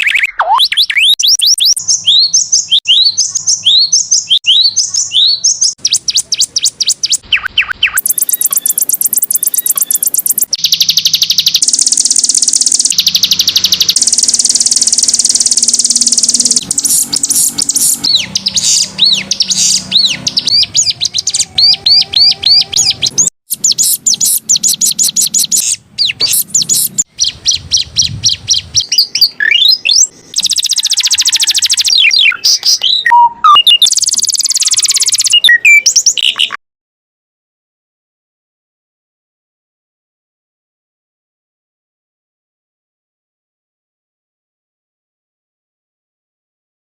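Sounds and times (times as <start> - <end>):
canary singing: 0.0 - 36.6.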